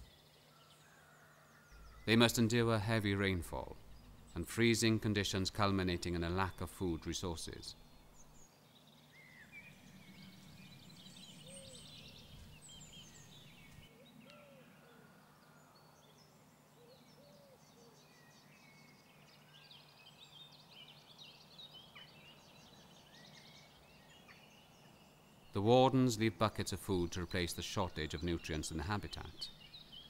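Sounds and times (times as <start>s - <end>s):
small birds chirping and trilling: 0.0s - 30.0s
low steady hum: 1.7s - 8.5s
short lower bird calls: 9.1s - 16.0s.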